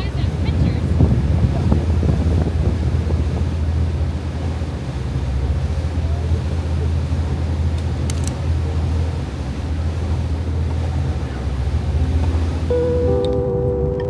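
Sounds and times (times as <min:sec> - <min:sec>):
steady low rumble: 0:00.0 - 0:14.0
wind on microphone: 0:00.0 - 0:14.0
faint clicks: 0:07.7 - 0:08.4.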